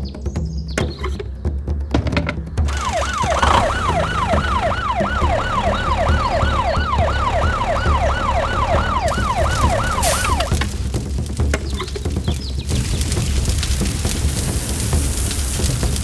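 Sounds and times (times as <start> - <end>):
background music with low beat: 0.0 - 16.0
fire truck siren: 2.7 - 11.0.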